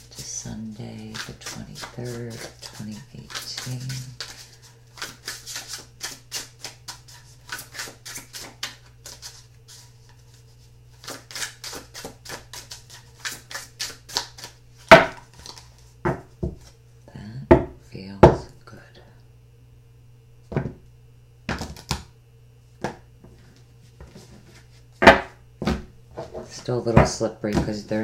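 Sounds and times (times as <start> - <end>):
cards being shuffled: 0.0 - 15.9.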